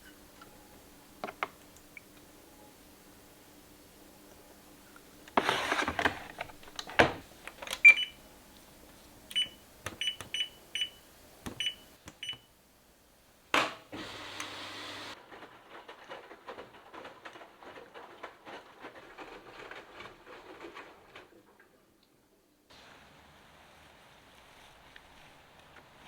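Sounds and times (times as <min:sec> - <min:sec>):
clicks and handling knocks: 0:05.3 - 0:08.0
keypad beeping: 0:07.0 - 0:08.2, 0:09.3 - 0:12.5.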